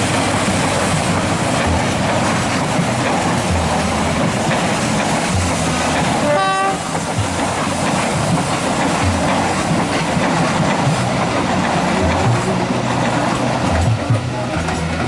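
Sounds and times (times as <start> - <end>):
train rumbling past: 0.0 - 15.0
train horn toot: 6.2 - 7.0.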